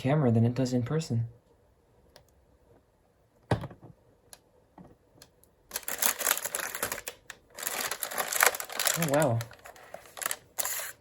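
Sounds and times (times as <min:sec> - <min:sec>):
knock on box: 0:03.5 - 0:03.9
packaging rustling and clattering: 0:05.7 - 0:10.9.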